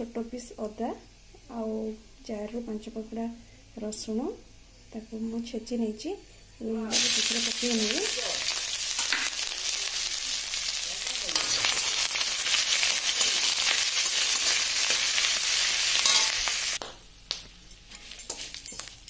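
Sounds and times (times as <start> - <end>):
food sizzling in hot oil: 6.8 - 19.0
spatula stirring: 12.8 - 16.5, 17.9 - 19.0.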